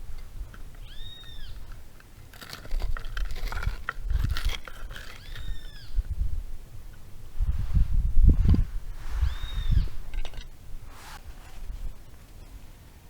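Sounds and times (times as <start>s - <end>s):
crunching scraping clicks: 0.0s - 5.9s
bird whistled calls: 0.8s - 1.6s, 9.2s - 10.0s.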